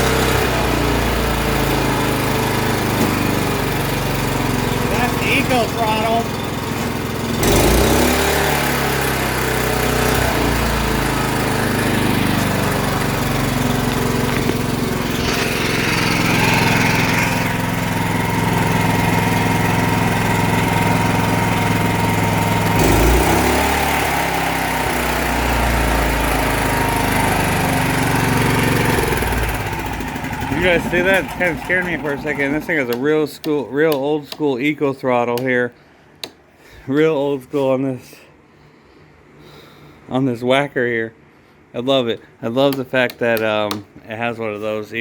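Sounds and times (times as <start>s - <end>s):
generator engine running: 0.0s - 34.5s.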